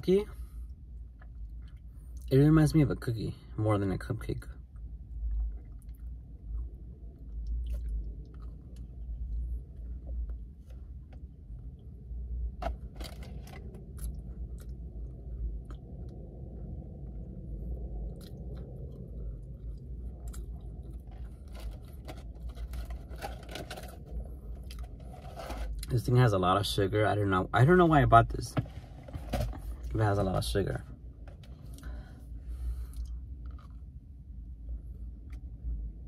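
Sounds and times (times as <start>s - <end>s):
steady low rumble: 0.0s - 36.0s
person chewing pastry: 4.7s - 10.5s, 12.7s - 25.9s.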